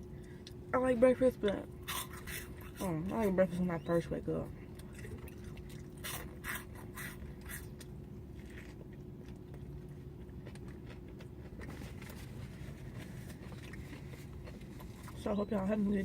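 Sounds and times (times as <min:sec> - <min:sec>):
steady low hum: 0:00.0 - 0:16.0
person chewing food: 0:01.7 - 0:02.9, 0:04.6 - 0:15.2
crunchy bites: 0:04.8 - 0:15.2.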